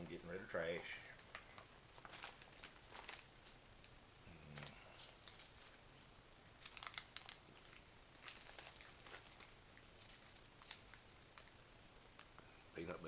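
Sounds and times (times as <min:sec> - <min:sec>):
packaging crinkling and rustling: 0:01.2 - 0:11.6.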